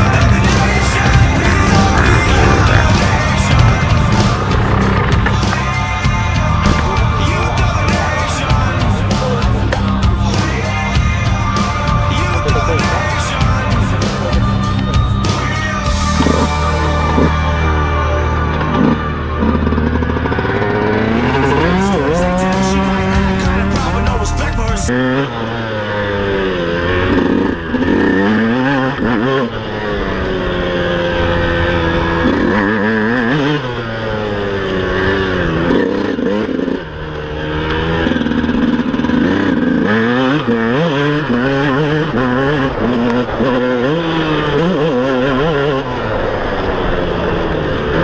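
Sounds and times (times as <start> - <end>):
motocross engine revving: 0.0 - 48.0.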